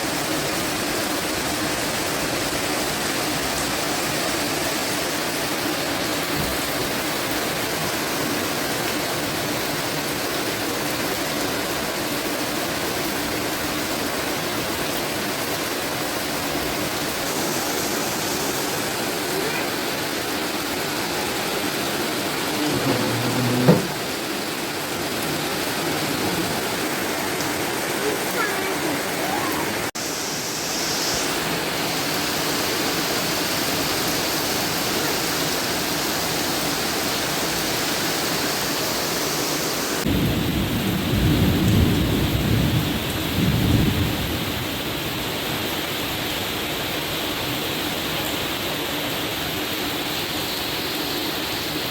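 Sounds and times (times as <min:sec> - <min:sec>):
rain falling steadily: 0:00.0 - 0:51.9
short knock: 0:22.7 - 0:24.0.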